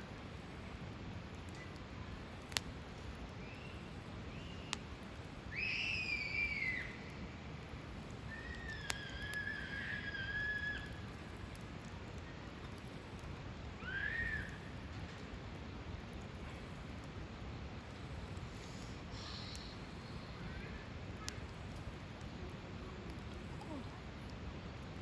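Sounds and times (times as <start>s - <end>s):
campfire hissing: 0.0s - 25.0s
fire popping: 0.0s - 25.0s
whistling from burning wood: 1.4s - 15.5s, 17.8s - 22.4s.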